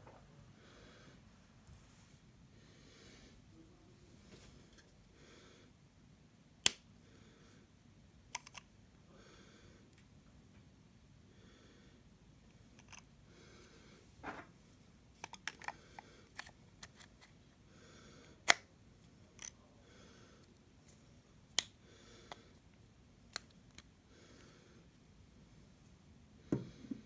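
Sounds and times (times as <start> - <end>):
plastic clicking and snapping: 8.3 - 8.7, 23.3 - 23.9.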